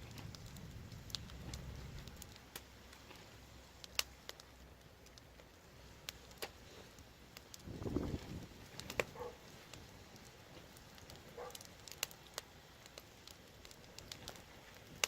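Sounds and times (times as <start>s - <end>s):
low rumble: 0.0s - 2.5s
wood fire crackling: 0.0s - 15.0s.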